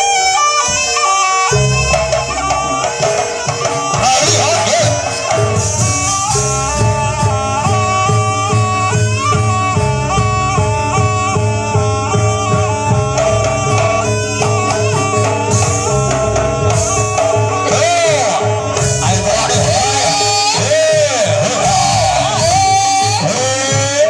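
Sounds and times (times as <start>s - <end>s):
reedy wind melody: 0.0s - 23.8s
steady drum pattern: 0.0s - 24.0s.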